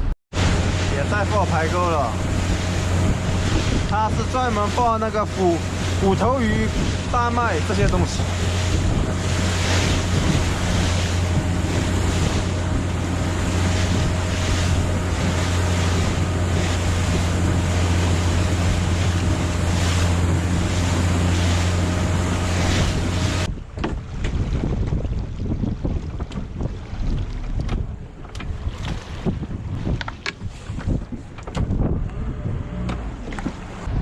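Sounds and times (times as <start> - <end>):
boat engine humming: 0.0 - 34.0
sea wash: 0.0 - 34.0
wind buffeting microphone: 0.0 - 34.0.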